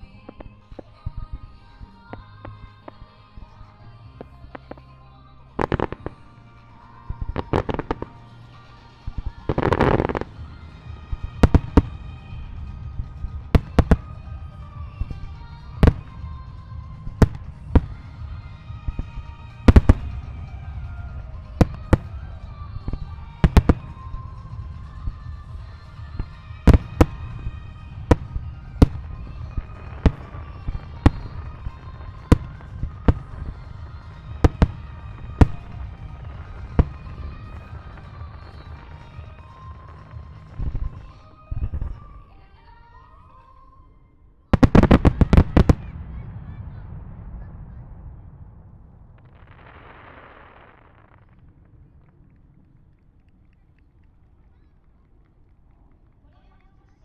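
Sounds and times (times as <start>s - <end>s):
low rumble: 0.0s - 42.1s, 44.6s - 54.0s
firework shells bursting: 0.0s - 42.2s
music playing: 0.0s - 43.6s.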